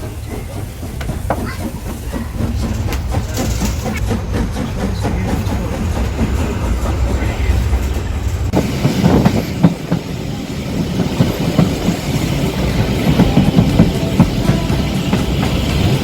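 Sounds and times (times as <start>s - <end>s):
train wheels clattering on rails: 0.0s - 16.0s.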